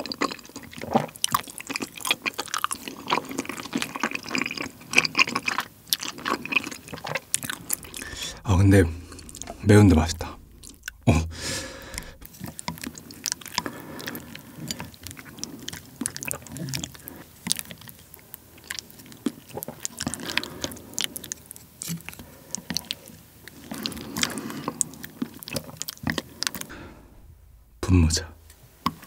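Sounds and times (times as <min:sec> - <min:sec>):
close chewing with wet mouth clicks: 0:00.0 - 0:08.2, 0:11.9 - 0:26.7.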